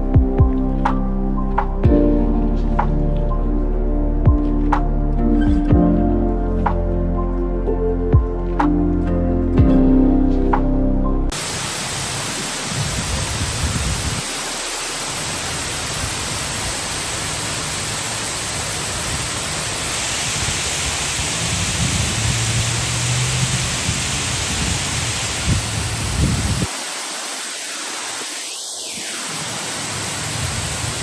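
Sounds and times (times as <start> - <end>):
waterfall rushing: 11.3 - 31.0.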